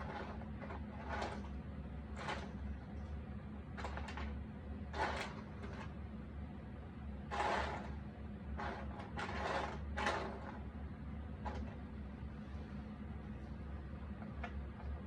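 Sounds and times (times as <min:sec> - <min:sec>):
puzzle pieces scraping and rustling: 0:00.0 - 0:01.5, 0:04.9 - 0:05.9, 0:07.3 - 0:08.0, 0:08.6 - 0:10.6
steady low hum: 0:00.0 - 0:15.0.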